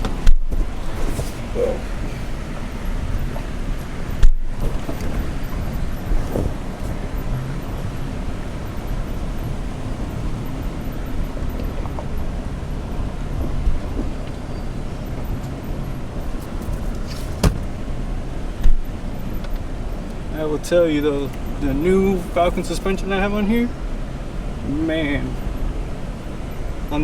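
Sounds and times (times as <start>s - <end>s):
pickup engine and tyre rumble: 0.0s - 27.0s.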